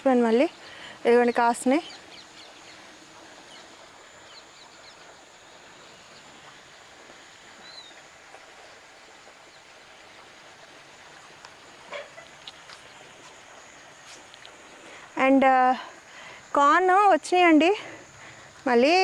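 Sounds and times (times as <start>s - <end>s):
faint bird chirps: 0.3s - 8.0s.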